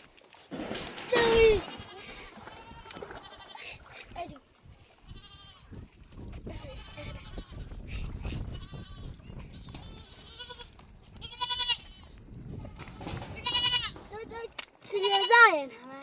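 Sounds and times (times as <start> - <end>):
goats bleating: 1.0 - 4.0, 5.0 - 5.8, 6.5 - 14.1, 14.8 - 15.4.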